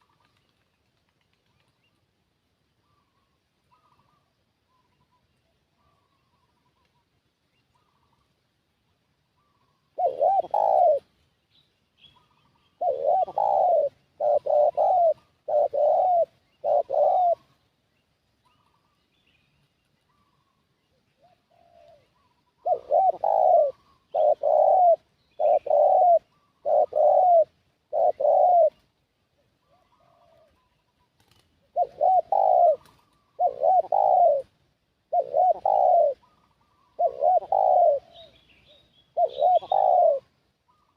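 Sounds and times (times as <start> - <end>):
faint high bird calls: 2.8 - 8.4, 9.3 - 40.9
dove cooing: 9.4 - 11.1, 12.2 - 17.7, 21.2 - 28.9, 29.6 - 40.9.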